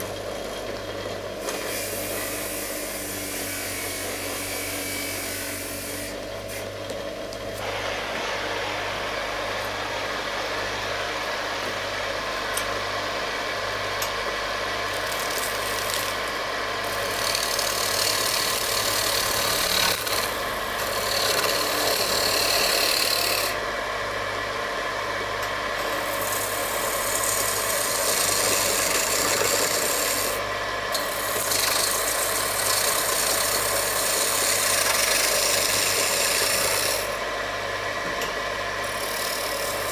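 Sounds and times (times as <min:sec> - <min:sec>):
wood lathe motor hum: 0:00.0 - 0:39.9.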